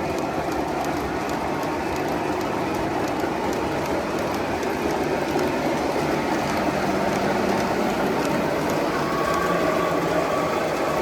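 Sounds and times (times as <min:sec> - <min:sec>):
faint clicks: 0:00.0 - 0:09.5
model train wheels rumbling on rails: 0:00.0 - 0:11.0.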